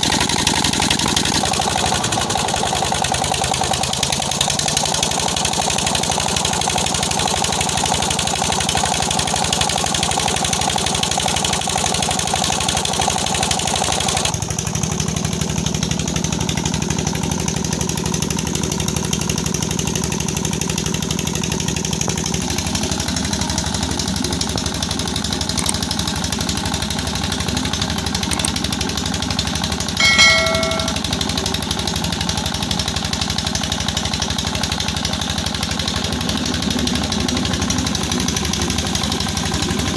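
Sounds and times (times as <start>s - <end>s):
diesel engine running with knock: 0.0s - 29.8s, 32.2s - 39.9s
short metallic ding: 30.0s - 31.1s.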